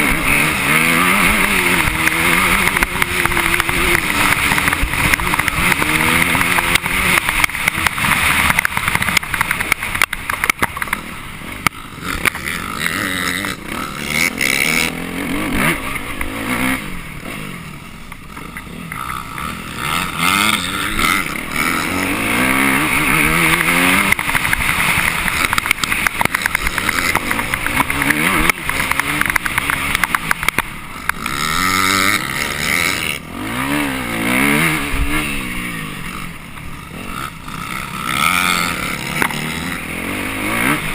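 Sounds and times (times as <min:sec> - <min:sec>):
dirt bike engine revving: 0:00.0 - 0:40.9
wind and riding noise: 0:00.0 - 0:40.9.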